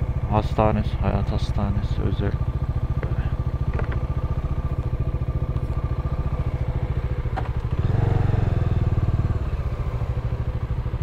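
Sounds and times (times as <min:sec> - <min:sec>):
motorcycle engine idling: 0:00.0 - 0:11.0
motorcycle pulling away: 0:02.6 - 0:11.0.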